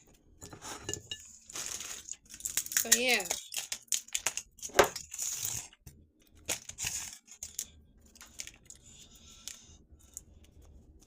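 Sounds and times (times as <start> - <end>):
dry pod shells cracking: 2.0 - 5.8.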